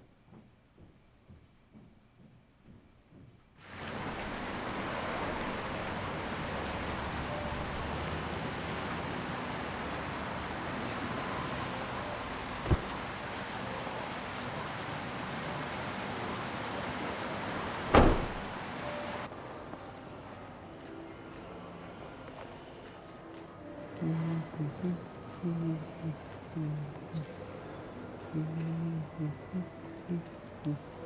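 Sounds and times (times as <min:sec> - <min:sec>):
low thump: 0:12.6 - 0:12.9, 0:17.9 - 0:18.5
short thud: 0:17.9 - 0:18.5.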